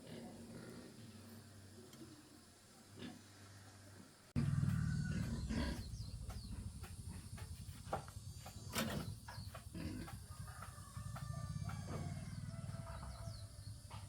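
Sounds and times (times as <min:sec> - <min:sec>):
small engine pulsing rumble: 0:04.4 - 0:14.0.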